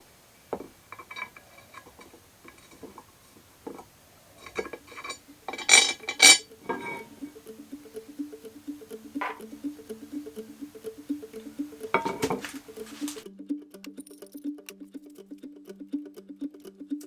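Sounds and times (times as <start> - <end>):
metal objects clinking: 0.0 - 8.0, 8.6 - 13.2
simple melody music: 6.5 - 17.0.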